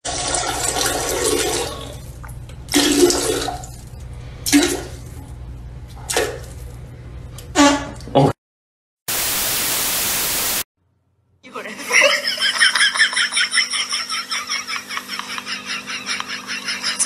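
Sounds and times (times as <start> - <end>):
toilet flushing: 0.0 - 5.2
tv static hiss: 9.1 - 10.7.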